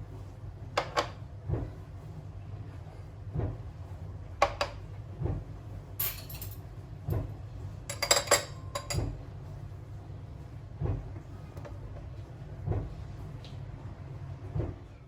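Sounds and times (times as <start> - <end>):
dishes and cutlery clinking: 6.0 - 6.6, 7.9 - 9.1.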